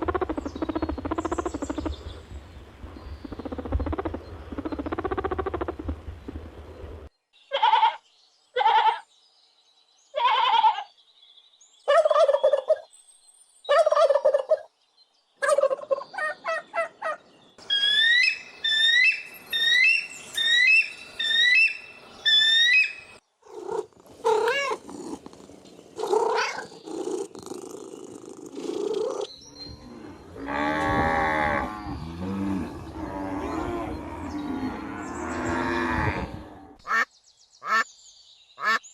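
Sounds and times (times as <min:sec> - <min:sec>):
animal calls: 0:15.4 - 0:37.0.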